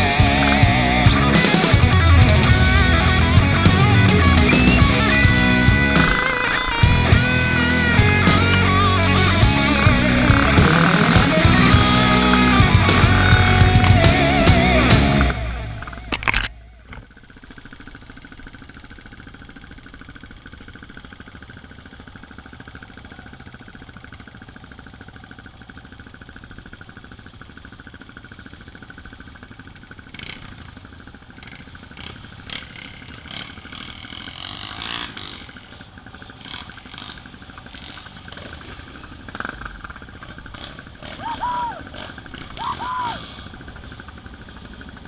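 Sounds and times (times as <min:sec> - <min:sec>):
music: 0:00.0 - 0:15.9
dirt bike engine idling: 0:00.0 - 0:45.0.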